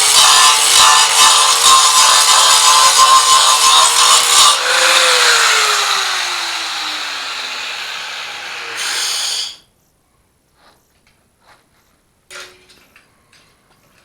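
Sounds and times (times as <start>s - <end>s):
angle grinder grinding steel: 0.0s - 9.6s
motor winding down whine: 4.6s - 9.5s.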